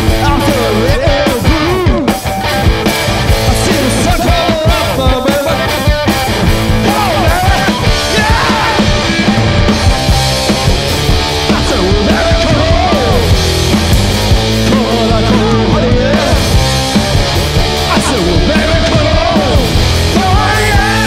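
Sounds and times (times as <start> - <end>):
person singing: 0.0 - 2.2, 3.4 - 5.9, 6.6 - 9.1, 11.4 - 13.4, 14.5 - 16.7, 17.8 - 21.0
distorted electric guitar: 0.0 - 21.0
drums: 0.0 - 21.0.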